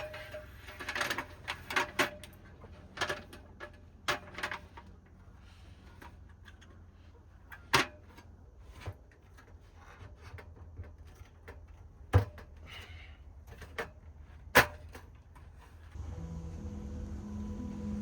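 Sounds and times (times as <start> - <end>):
light clicks and rustles: 0.0 - 16.0
low steady hum: 15.8 - 18.0.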